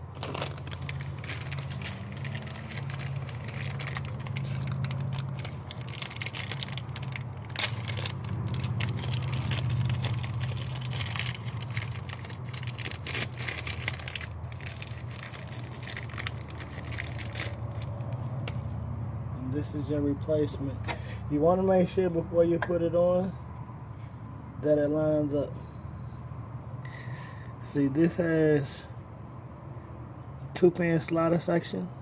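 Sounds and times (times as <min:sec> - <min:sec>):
crinkling crunching handling noise: 0:00.0 - 0:19.1.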